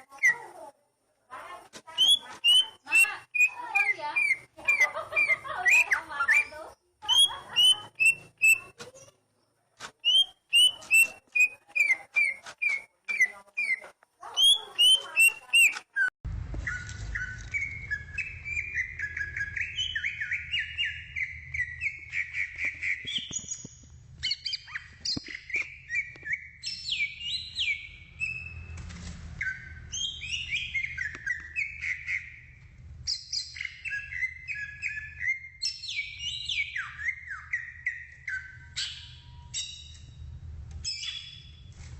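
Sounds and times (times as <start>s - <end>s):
bird whistled song: 2.0s - 9.1s, 10.0s - 13.8s, 14.4s - 28.8s, 29.4s - 40.2s, 40.8s - 41.7s
steady low hum: 37.7s - 41.9s.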